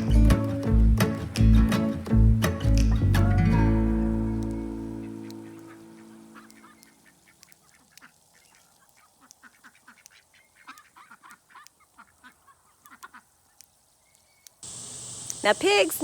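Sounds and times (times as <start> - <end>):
guitar music: 0.0 - 6.7
ducks quacking: 4.6 - 13.5.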